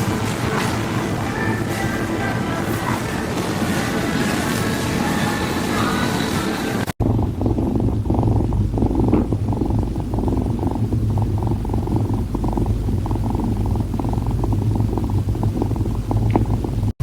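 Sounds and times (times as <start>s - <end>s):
close purring: 0.0s - 6.0s, 6.8s - 17.0s.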